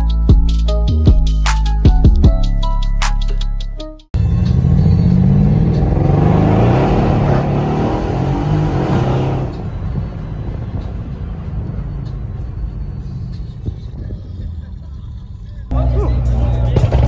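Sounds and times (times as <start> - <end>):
car engine accelerating: 4.2 - 17.0.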